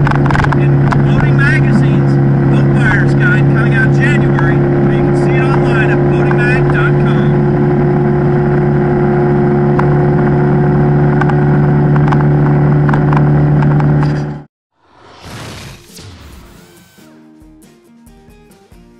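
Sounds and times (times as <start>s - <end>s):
boat engine running: 0.0s - 14.5s.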